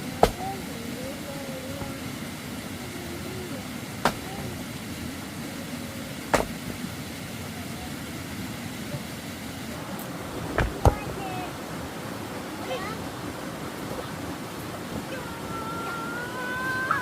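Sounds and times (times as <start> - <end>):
sharp knocks: 6.3 - 6.8.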